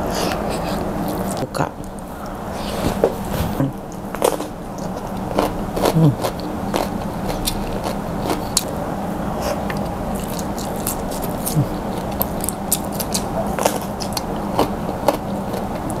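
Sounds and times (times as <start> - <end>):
person chewing crispy food: 3.9 - 8.7, 9.4 - 16.0.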